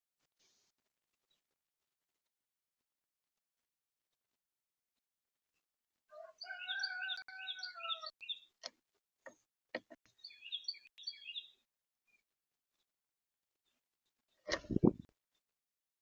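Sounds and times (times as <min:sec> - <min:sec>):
small birds chirping: 0:06.1 - 0:08.7, 0:09.8 - 0:12.2.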